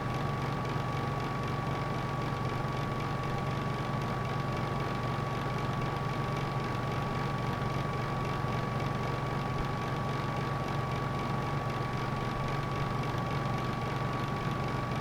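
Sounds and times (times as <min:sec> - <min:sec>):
electric heater humming: 0:00.0 - 0:15.0.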